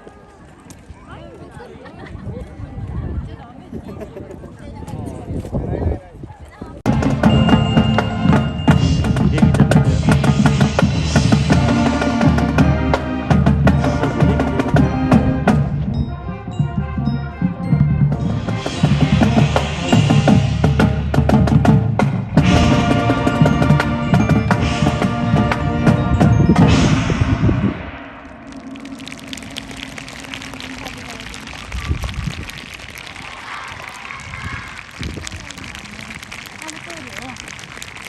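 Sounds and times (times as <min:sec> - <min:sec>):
drum strokes: 0:06.9 - 0:33.1
marching band playing: 0:06.9 - 0:33.2.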